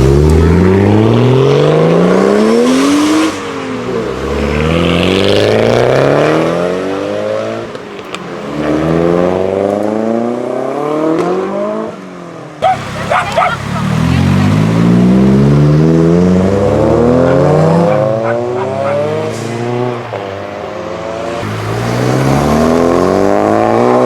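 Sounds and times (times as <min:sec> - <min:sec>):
car engine accelerating: 0:00.0 - 0:12.0, 0:12.6 - 0:24.0.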